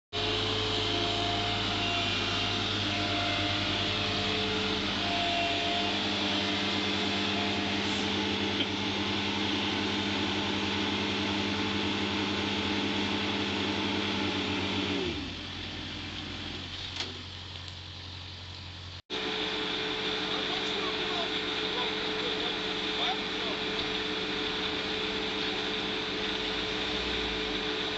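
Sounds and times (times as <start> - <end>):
vehicle engine running: 0.1 - 27.9.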